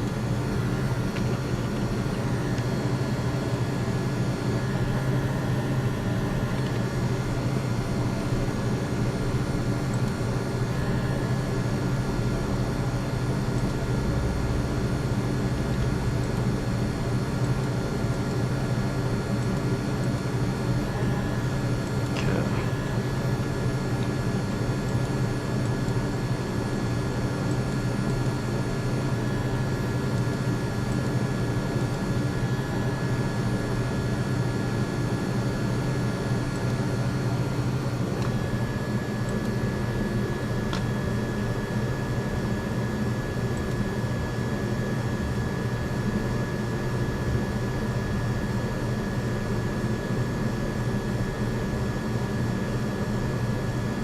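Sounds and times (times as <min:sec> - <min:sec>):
mechanical hum: 0:00.0 - 0:54.0.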